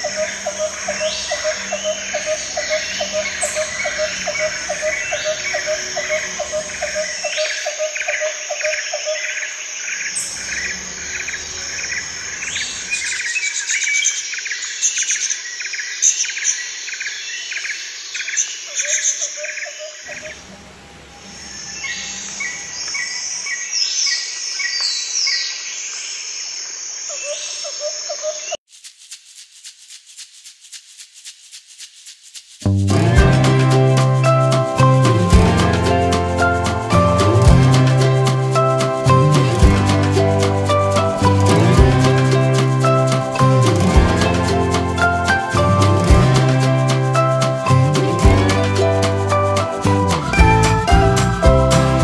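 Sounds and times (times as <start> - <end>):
music with rhythmic shaker: 0.0 - 7.6, 28.7 - 52.0
repeated bird call: 0.0 - 14.2
small birds chirping: 0.0 - 20.4, 21.1 - 28.6.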